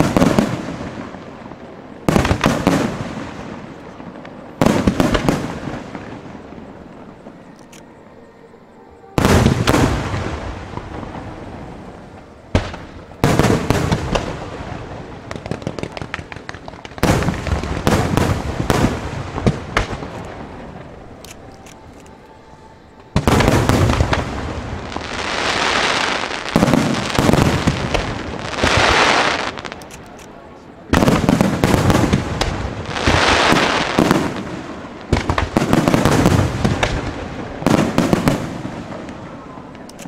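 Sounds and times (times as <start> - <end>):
fireworks bursting and crackling: 0.0 - 7.4, 9.2 - 40.0.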